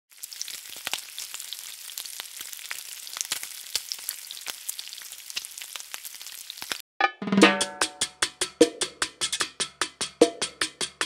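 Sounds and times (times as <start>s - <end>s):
food sizzling and crackling in oil: 0.1s - 6.8s.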